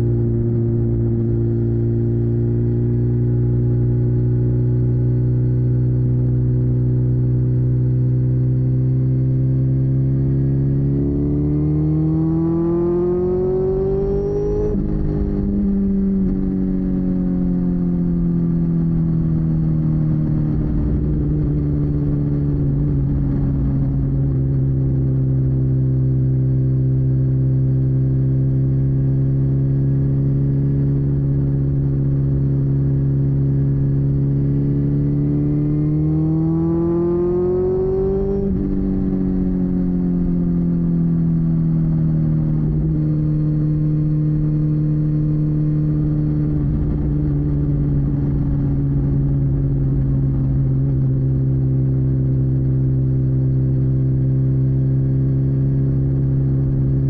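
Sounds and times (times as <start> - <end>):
motorcycle engine revving: 7.6 - 26.2, 28.9 - 57.0
wind rush on microphone: 20.2 - 25.6, 46.1 - 51.7.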